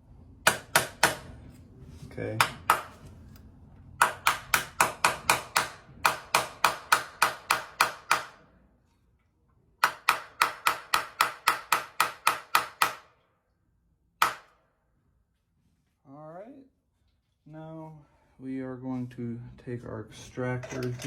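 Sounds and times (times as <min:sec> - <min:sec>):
hammer tapping metal: 0:00.4 - 0:01.3, 0:02.4 - 0:03.0, 0:04.0 - 0:08.4.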